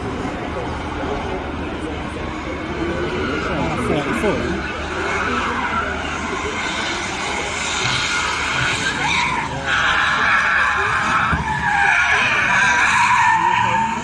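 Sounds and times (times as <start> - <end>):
car engine: 0.0 - 14.0
tyres screeching: 2.8 - 14.0.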